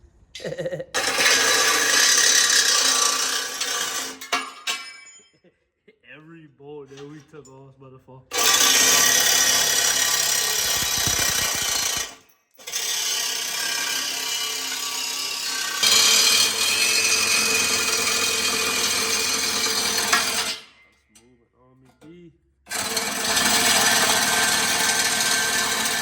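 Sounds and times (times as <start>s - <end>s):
power tool running: 1.0s - 4.3s, 8.3s - 20.6s, 22.7s - 26.0s.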